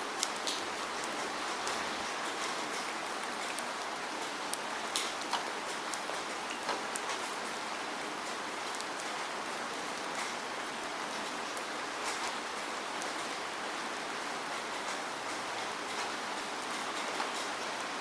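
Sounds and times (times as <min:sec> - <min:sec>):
raindrops striking a surface: 0:00.0 - 0:18.0
steady rain falling: 0:00.0 - 0:18.0.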